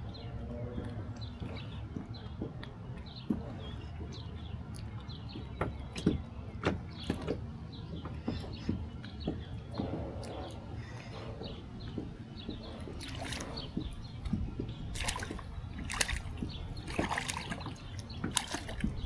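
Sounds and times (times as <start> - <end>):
water sloshing: 0.1 - 19.0
fish thrashing and splashing: 12.4 - 19.0.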